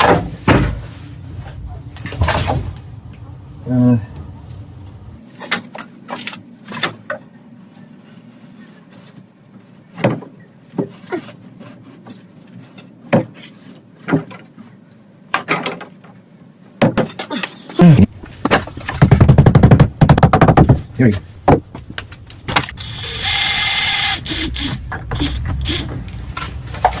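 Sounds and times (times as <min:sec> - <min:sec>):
wooden knocks and bumps: 0:16.8 - 0:17.2, 0:18.1 - 0:22.7.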